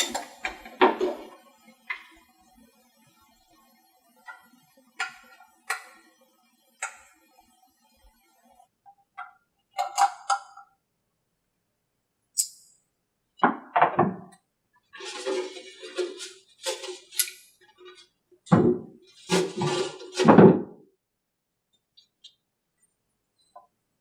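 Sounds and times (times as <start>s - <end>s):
metal parts clunking and scraping: 15.0s - 18.0s, 19.2s - 20.5s.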